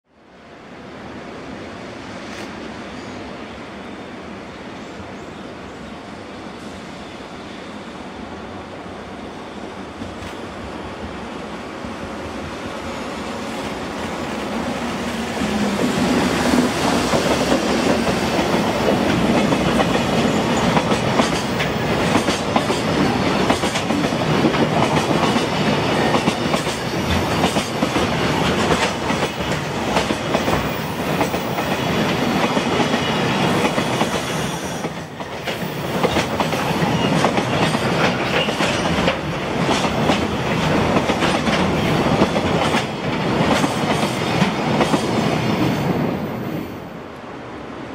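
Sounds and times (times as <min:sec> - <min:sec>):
freight train rumbling past: 0:00.2 - 0:47.9
wheels clacking over rail joints: 0:16.5 - 0:34.2.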